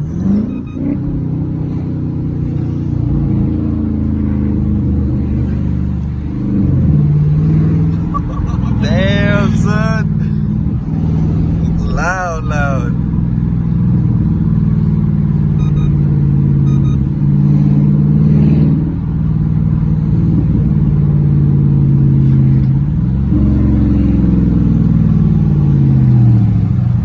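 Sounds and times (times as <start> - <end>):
loud engine exhaust drone: 0.0 - 27.0.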